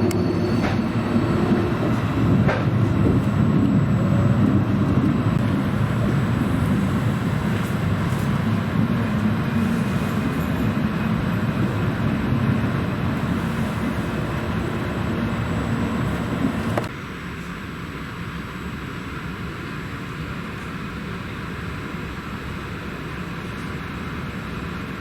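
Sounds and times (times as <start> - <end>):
passenger train running: 0.0 - 25.0.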